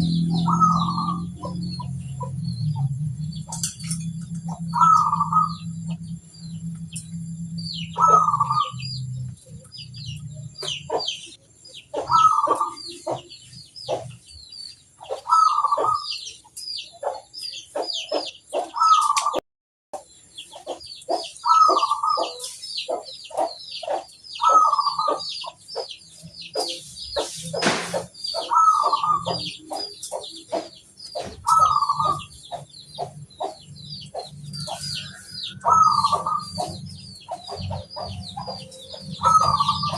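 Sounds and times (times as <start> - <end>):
dove cooing: 0.0 - 2.4, 3.6 - 5.7, 7.8 - 9.0, 12.0 - 13.3, 15.0 - 16.1, 21.1 - 25.2, 28.3 - 34.9, 35.6 - 39.9
small birds chirping: 0.0 - 19.4, 20.0 - 39.9.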